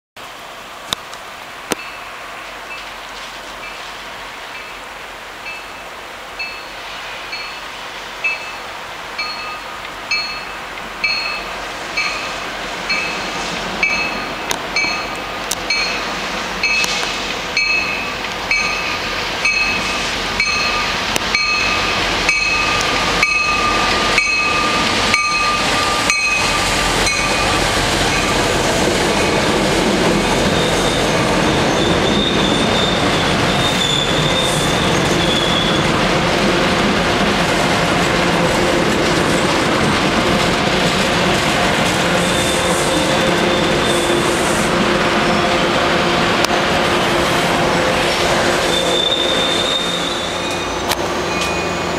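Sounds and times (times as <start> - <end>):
train wheels rumbling on rail: 0.2 - 51.9
train bell ringing: 1.7 - 3.0, 4.6 - 17.0, 17.6 - 29.5, 48.7 - 51.9
high wheel squeal: 29.1 - 35.9, 42.2 - 45.6, 47.9 - 51.9.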